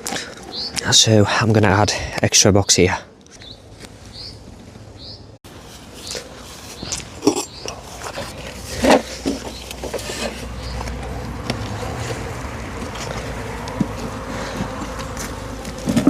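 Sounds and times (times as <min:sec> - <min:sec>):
wooden boxes knocking and scraping: 0:06.8 - 0:16.0.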